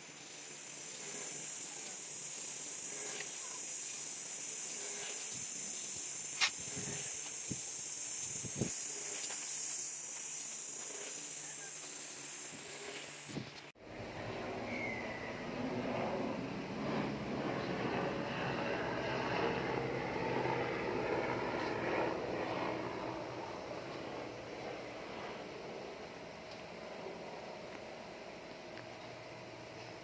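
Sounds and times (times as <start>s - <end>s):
strip machine hissing: 0.0s - 13.8s.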